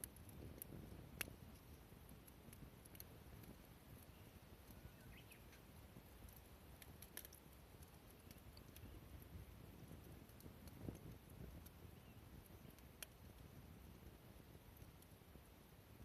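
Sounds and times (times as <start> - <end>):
faint clicks: 0.0 - 9.0, 12.4 - 13.4.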